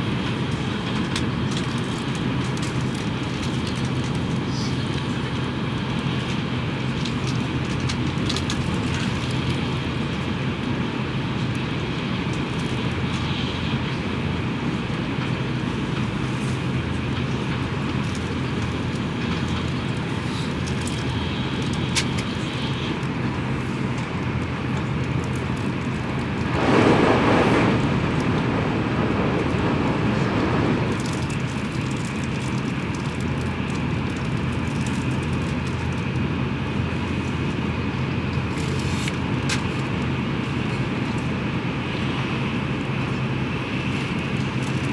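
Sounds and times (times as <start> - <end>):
train cabin rumble and hum: 0.0 - 44.9
train rushing swell: 26.0 - 31.7.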